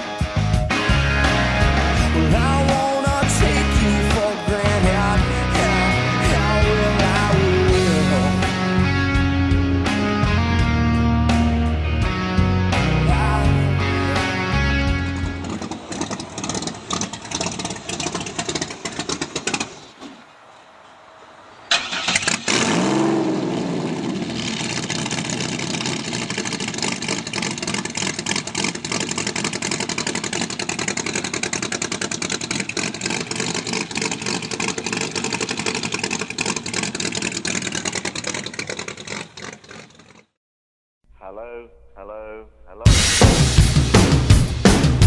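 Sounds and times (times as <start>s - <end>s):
engine starting revving and idling: 0.7s - 10.1s, 12.7s - 20.2s, 21.7s - 40.4s.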